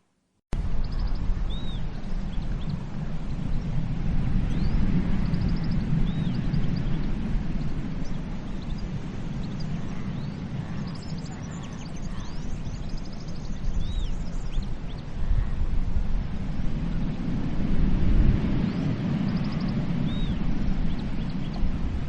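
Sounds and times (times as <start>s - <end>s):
wind: 0.0s - 22.0s
birds chirping and whistling: 0.8s - 2.8s, 8.0s - 15.0s, 18.7s - 21.7s
sea surf: 14.2s - 22.0s.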